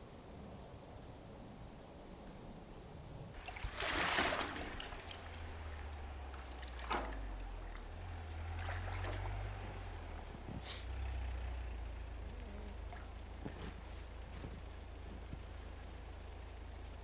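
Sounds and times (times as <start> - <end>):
water splashing and sloshing: 3.4 - 10.6, 12.2 - 17.0
low rumble: 3.4 - 17.0.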